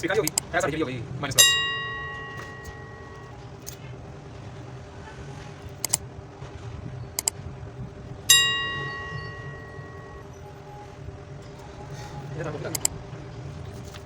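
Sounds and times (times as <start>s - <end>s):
bright metallic ring: 1.4s - 3.4s, 8.3s - 10.4s.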